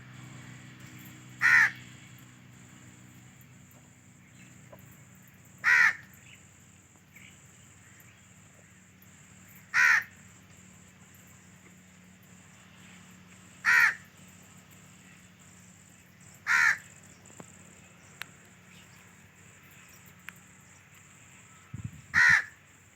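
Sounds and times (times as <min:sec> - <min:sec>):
bird giving harsh calls: 0:01.4 - 0:01.8, 0:05.6 - 0:06.1, 0:09.7 - 0:10.2, 0:13.6 - 0:14.0, 0:16.5 - 0:16.9, 0:22.1 - 0:22.6.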